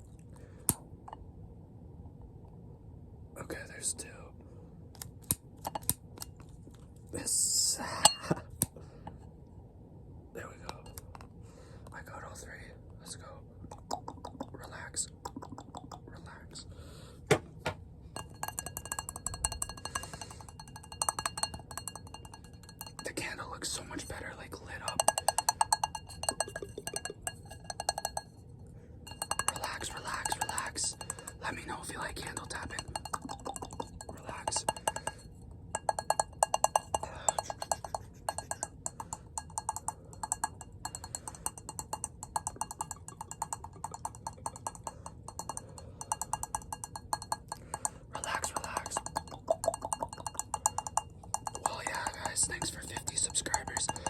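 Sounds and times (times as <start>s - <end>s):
rapid tapping on glass jar: 5.6s - 6.6s, 7.8s - 9.2s, 10.6s - 11.3s, 13.7s - 16.4s, 18.2s - 54.0s.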